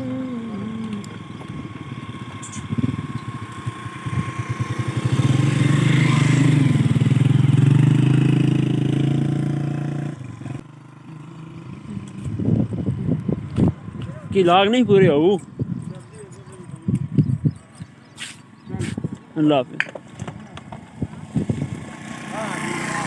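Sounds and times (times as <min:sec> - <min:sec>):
vehicle engine passing by: 0:00.0 - 0:14.3, 0:20.9 - 0:23.0.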